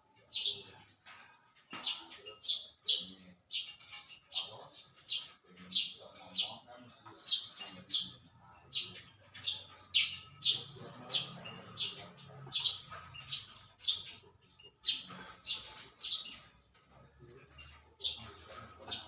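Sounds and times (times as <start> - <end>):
small bird chirping: 0.1 - 19.0.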